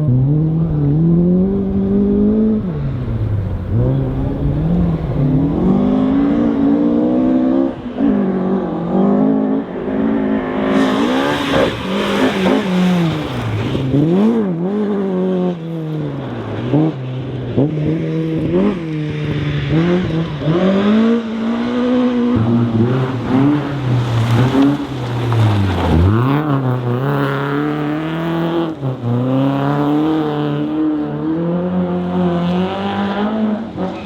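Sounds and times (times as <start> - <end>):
car engine revving hard: 0.2 - 15.8, 16.7 - 34.0
loud rushing noise: 1.6 - 8.0.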